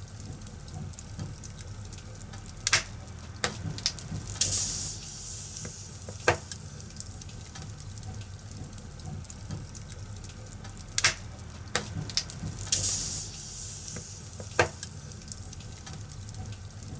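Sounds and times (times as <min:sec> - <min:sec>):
fire crackling and popping: 0:00.0 - 0:16.9
flames hissing: 0:02.7 - 0:07.9, 0:11.0 - 0:16.2.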